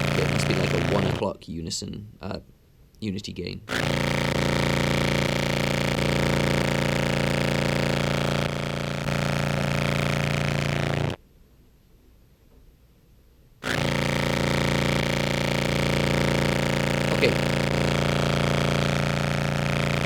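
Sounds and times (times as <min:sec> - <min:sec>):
fuzzy low clarinet note: 0:00.0 - 0:01.2, 0:13.7 - 0:20.0
faint hum: 0:00.0 - 0:11.2, 0:13.6 - 0:20.0.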